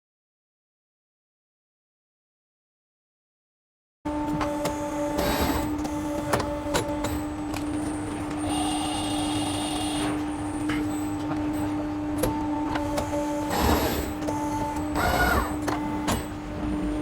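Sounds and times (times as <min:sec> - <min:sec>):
high machine whine: 0:04.1 - 0:17.0
machine motor hum: 0:04.1 - 0:17.0.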